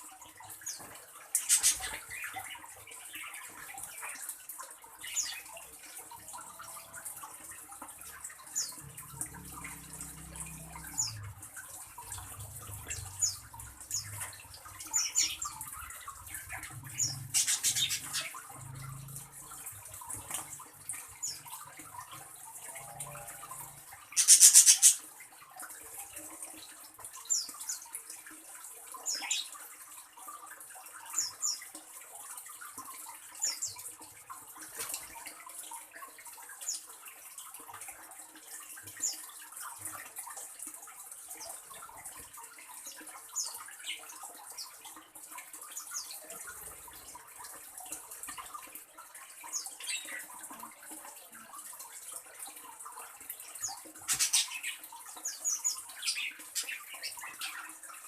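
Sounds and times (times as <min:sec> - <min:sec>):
birds chirping: 0:00.5 - 0:04.0, 0:12.0 - 0:19.6, 0:24.1 - 0:25.0, 0:53.6 - 0:57.8.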